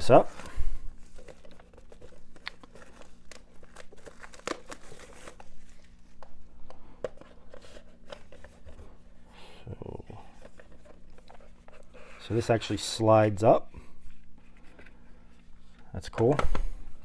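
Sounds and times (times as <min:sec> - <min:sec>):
shrink wrap crinkling and tearing: 0:00.0 - 0:06.5.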